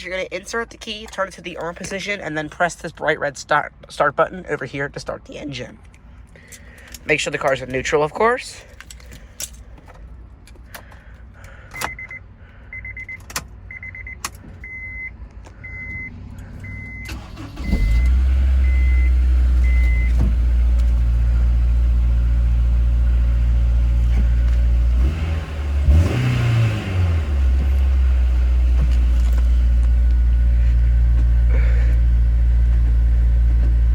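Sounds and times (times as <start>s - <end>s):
car engine starting and idling: 0.0s - 33.9s
engine revving: 16.6s - 33.9s.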